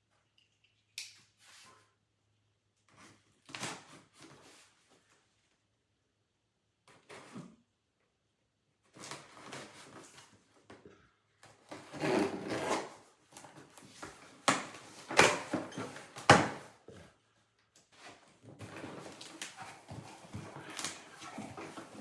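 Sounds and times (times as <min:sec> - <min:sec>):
cardboard box scraping and rustling: 0:11.7 - 0:13.0, 0:18.6 - 0:22.0.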